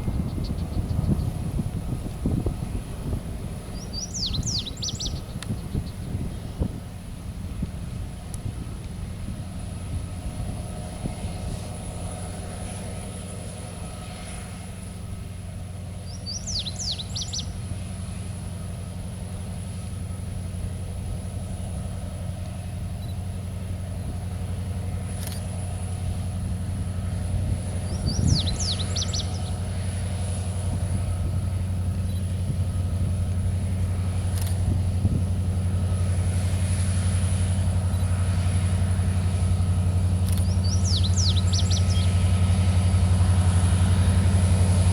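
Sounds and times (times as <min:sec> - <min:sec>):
bird singing: 0:00.0 - 0:01.4, 0:03.6 - 0:06.2, 0:16.0 - 0:17.6, 0:23.0 - 0:23.2, 0:27.7 - 0:30.1, 0:31.6 - 0:32.9, 0:39.6 - 0:43.1
low engine rumble: 0:00.0 - 0:44.9.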